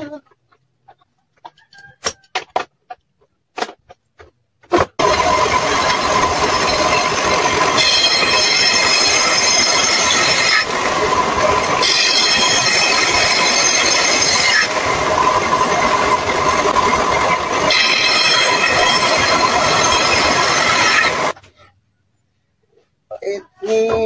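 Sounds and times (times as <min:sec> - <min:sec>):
power tool whining: 0:05.0 - 0:21.4.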